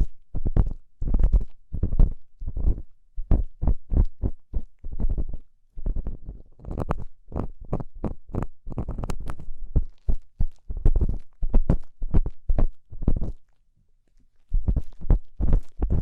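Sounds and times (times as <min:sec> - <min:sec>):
ear tool scraping in ear: 0:05.0 - 0:12.4.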